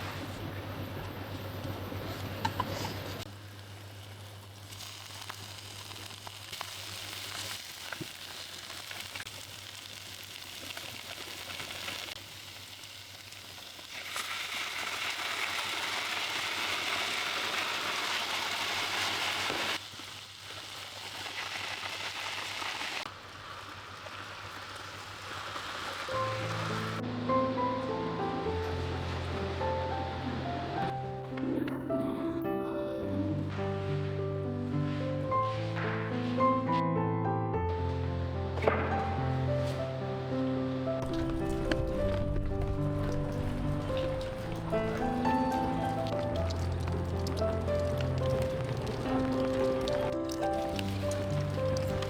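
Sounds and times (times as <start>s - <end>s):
steady hissing: 38.1s - 52.0s.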